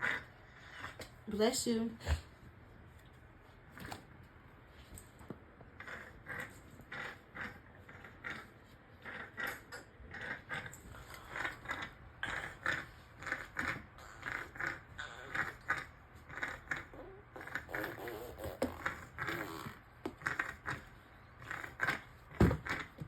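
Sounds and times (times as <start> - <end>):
child making mouth noises: 16.8 - 19.8.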